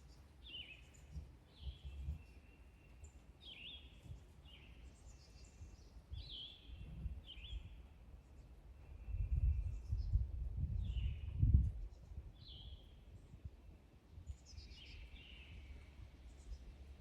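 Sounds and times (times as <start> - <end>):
songbirds whistling: 0.1 - 7.8, 14.3 - 16.7.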